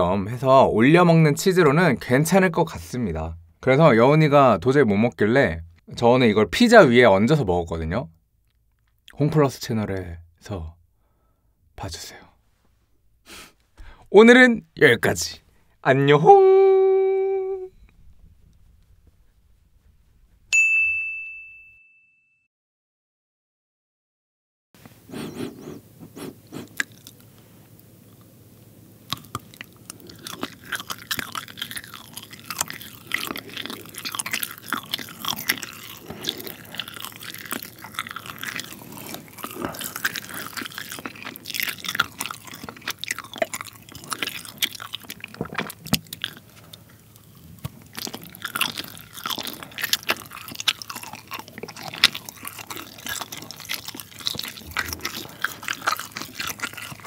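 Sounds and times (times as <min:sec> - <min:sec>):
close chewing with wet mouth sounds: 0:25.1 - 0:28.3, 0:29.0 - 0:57.0.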